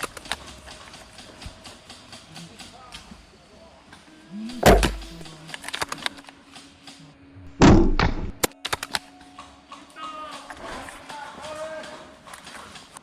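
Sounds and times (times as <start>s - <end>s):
airsoft gunshots: 4.5s - 5.3s
pellets striking: 4.6s - 5.3s.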